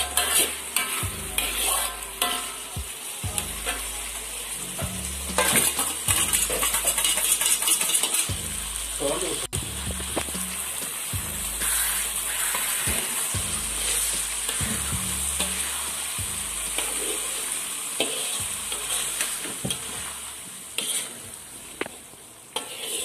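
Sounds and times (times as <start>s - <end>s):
spatula stirring and scraping: 0.0s - 2.7s, 5.2s - 8.4s, 11.6s - 23.0s
sambal sizzling in a wok: 0.0s - 23.0s.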